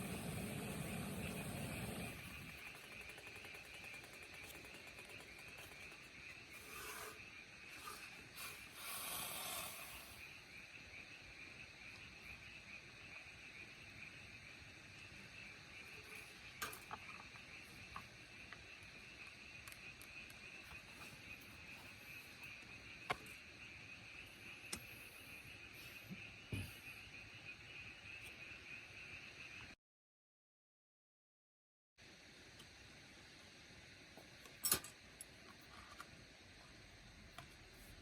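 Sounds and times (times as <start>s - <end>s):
insects chirring: 0.0s - 29.8s, 32.0s - 38.0s
sharp clicks: 2.1s - 6.3s.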